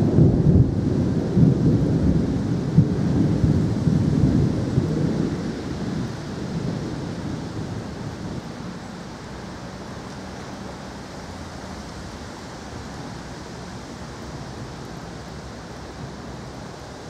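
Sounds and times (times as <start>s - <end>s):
rain hissing steadily: 0.0s - 17.0s.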